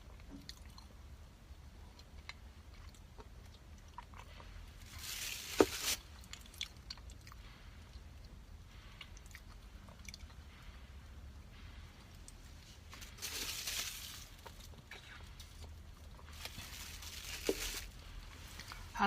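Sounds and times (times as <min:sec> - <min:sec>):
chewing and biting food: 0:00.0 - 0:10.6
crunching: 0:12.3 - 0:18.9.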